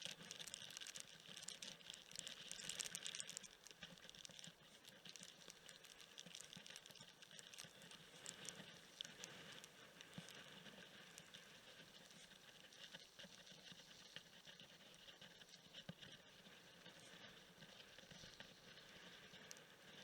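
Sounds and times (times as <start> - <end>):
raindrops pattering: 0.0 - 11.5.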